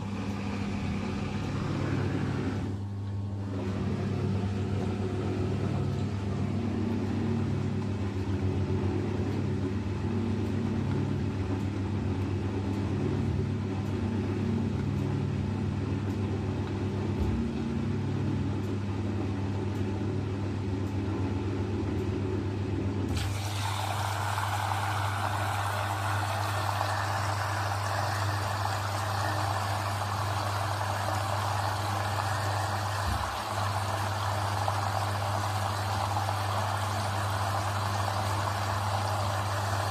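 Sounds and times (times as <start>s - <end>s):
washing machine humming: 0.0s - 39.9s
water rushing in: 23.1s - 39.9s.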